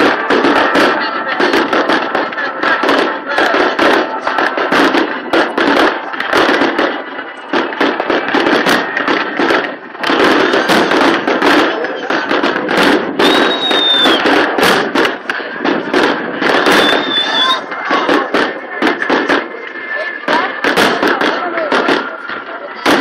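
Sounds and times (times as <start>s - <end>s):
fireworks bangs and crackles: 0.0s - 23.0s
short high whistle: 13.2s - 14.2s, 16.8s - 17.6s.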